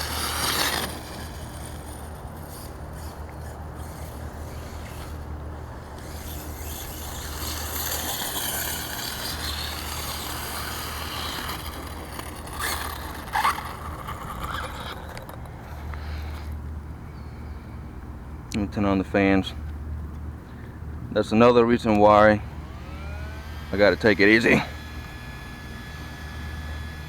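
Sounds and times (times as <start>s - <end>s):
electric motor whining: 0.0s - 16.6s, 22.5s - 27.0s.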